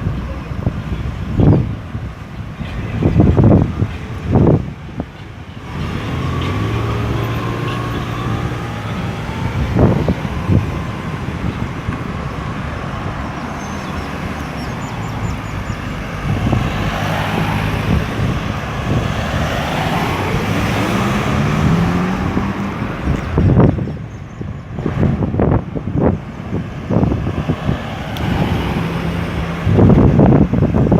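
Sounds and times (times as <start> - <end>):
cars and trucks passing: 0.0 - 30.9
vehicle speeding up: 5.6 - 23.8, 26.9 - 30.6.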